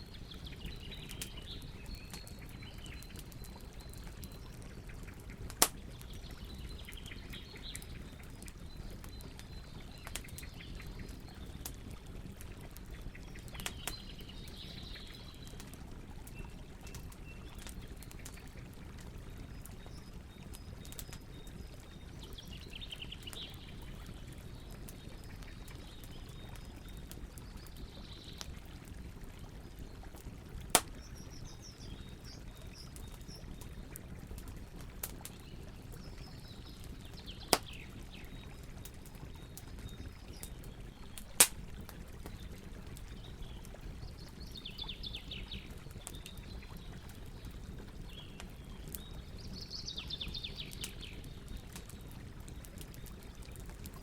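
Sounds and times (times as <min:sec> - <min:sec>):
campfire crackling: 0:00.1 - 0:54.0
fire popping: 0:00.6 - 0:14.6, 0:30.0 - 0:49.5.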